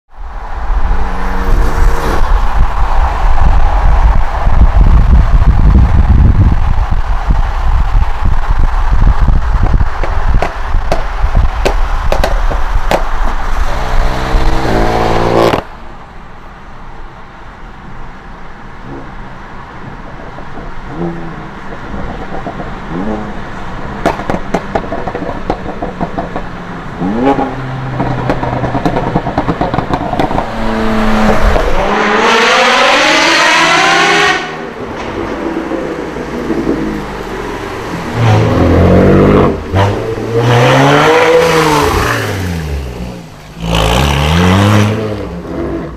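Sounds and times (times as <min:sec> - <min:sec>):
car engines revving hard: 0:00.3 - 0:15.7, 0:20.8 - 0:45.9
exhaust pops and crackles: 0:03.4 - 0:13.8, 0:24.0 - 0:26.6, 0:28.0 - 0:30.5.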